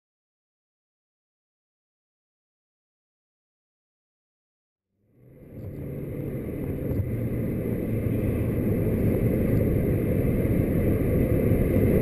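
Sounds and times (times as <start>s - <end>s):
diesel engine droning: 5.0s - 12.0s
tyre and road noise: 5.1s - 12.0s.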